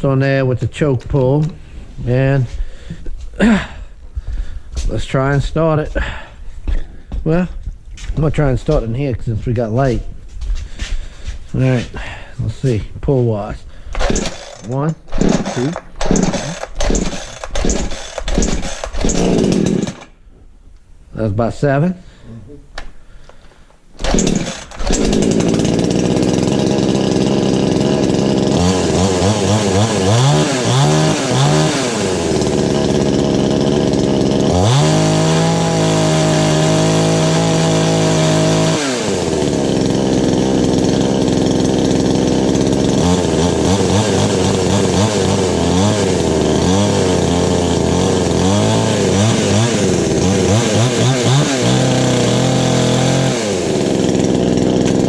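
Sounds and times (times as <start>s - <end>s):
chainsaw engine starting and revving: 13.9s - 20.2s, 24.0s - 55.0s.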